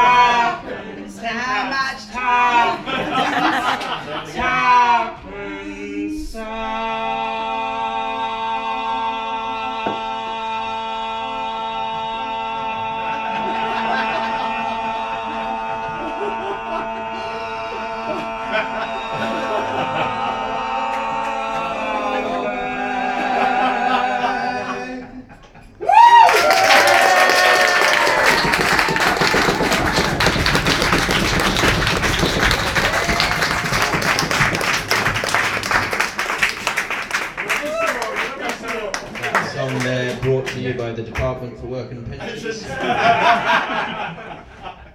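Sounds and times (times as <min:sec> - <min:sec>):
audience applause and cheering: 0:02.9 - 0:03.9, 0:25.8 - 0:40.6
person whooping: 0:25.8 - 0:30.4.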